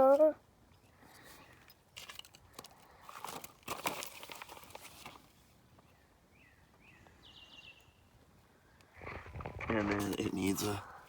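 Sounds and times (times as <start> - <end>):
small hardware clicking and rustling: 0.7 - 5.2.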